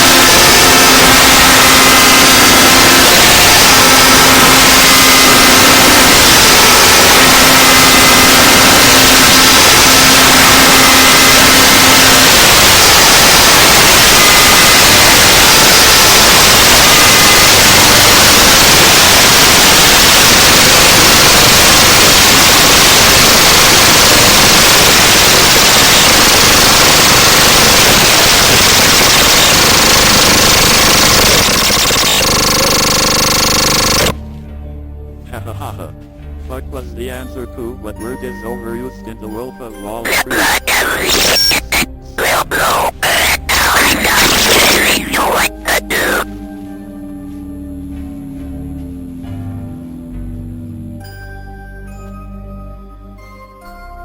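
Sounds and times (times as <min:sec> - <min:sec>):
faint steady tones: 0:00.0 - 0:34.2
harsh static noise: 0:00.0 - 0:34.2, 0:40.0 - 0:50.6.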